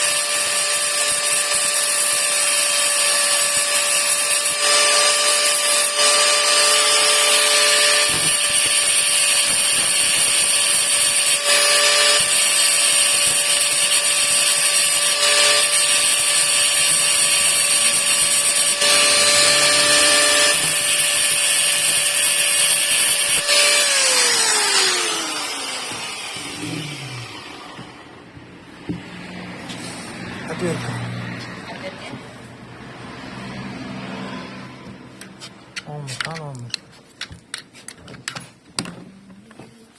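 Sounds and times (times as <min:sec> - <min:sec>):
power tool winding down whine: 0:00.0 - 0:28.0
handheld power tool running: 0:00.0 - 0:28.2.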